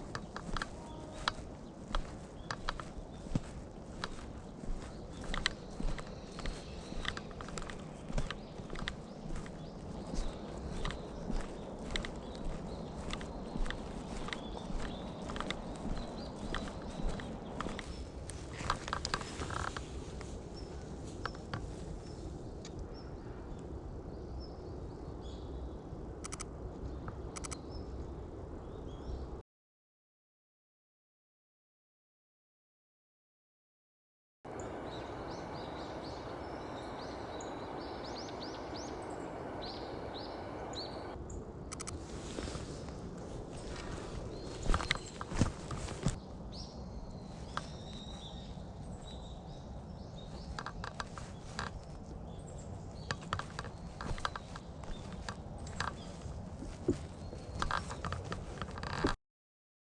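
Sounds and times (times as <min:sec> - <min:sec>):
buzzy bird calls: 0:00.0 - 0:18.0, 0:34.5 - 0:41.2
small birds chirping: 0:00.0 - 0:20.0, 0:34.5 - 0:41.2, 0:43.6 - 0:58.6
footsteps crunching on path: 0:00.0 - 0:21.2, 0:34.5 - 0:41.2, 0:53.3 - 0:58.9.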